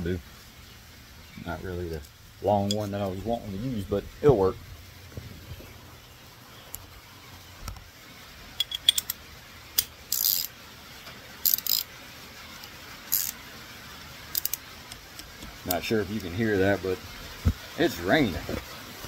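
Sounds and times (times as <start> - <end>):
steady rain: 0.0 - 19.0
hand tools clinking and rattling: 8.6 - 9.2.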